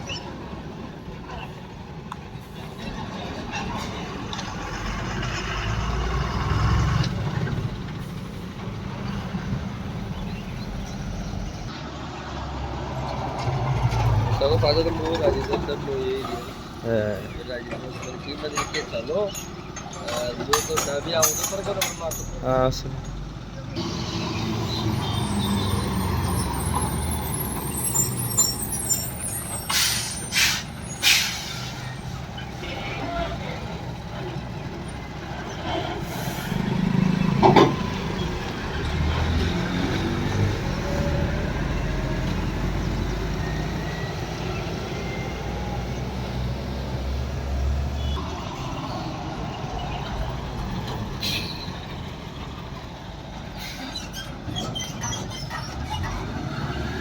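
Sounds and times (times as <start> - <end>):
road noise: 0.0 - 57.0
truck engine passing by: 0.0 - 57.0
air brake hisses: 28.0 - 32.0.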